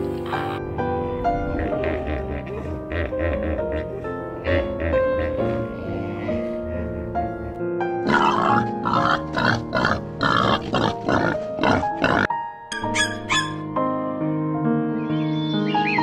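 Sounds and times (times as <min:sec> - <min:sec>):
background music: 0:00.0 - 0:16.0
wild boar grunting: 0:04.5 - 0:12.3.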